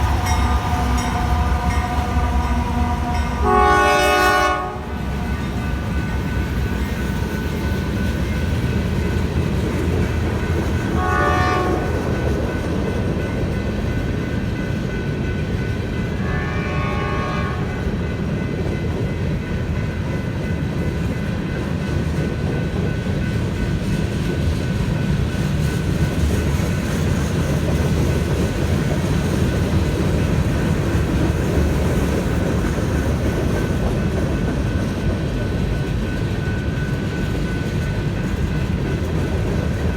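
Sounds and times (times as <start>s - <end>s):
locomotive horn blasts: 0.0s - 5.9s, 10.8s - 12.1s, 16.2s - 18.0s
train wheels rumbling on rail: 0.0s - 39.9s.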